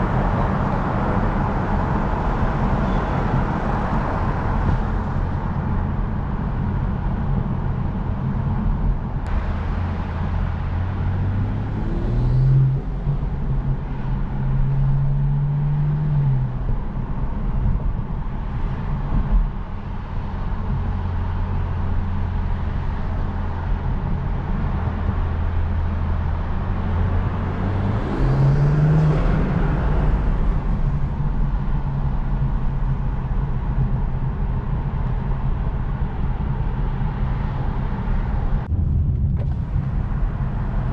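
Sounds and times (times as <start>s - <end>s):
road noise: 0.0s - 40.9s
car engine revving: 9.3s - 16.8s, 24.0s - 34.0s.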